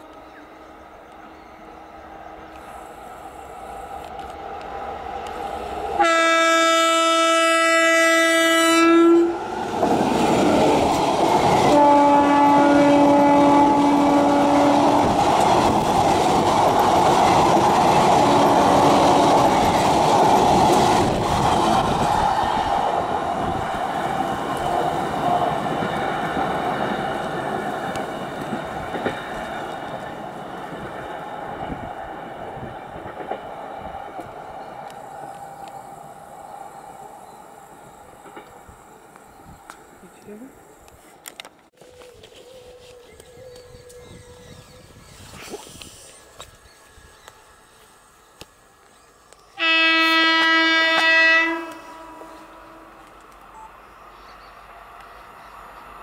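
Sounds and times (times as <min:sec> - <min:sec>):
locomotive horn: 0:06.0 - 0:09.5, 0:11.7 - 0:15.2, 0:18.2 - 0:19.6, 0:49.6 - 0:53.1.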